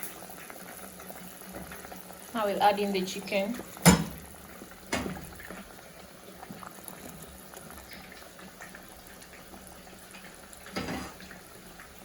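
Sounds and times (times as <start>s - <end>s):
pan simmering and bubbling: 0.0s - 12.0s
knock against pan: 3.8s - 4.2s, 4.9s - 5.3s.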